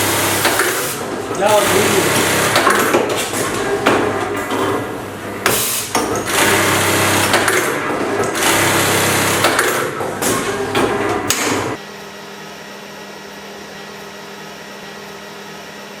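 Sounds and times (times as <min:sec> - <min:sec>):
sewing machine running: 0:00.0 - 0:11.8
machine knocks: 0:00.4 - 0:06.5.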